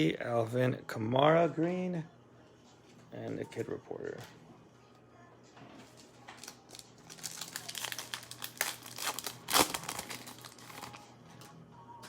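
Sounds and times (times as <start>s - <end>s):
plastic wrapper crinkling: 6.2s - 11.1s
plastic wrapper ripping: 6.3s - 11.0s.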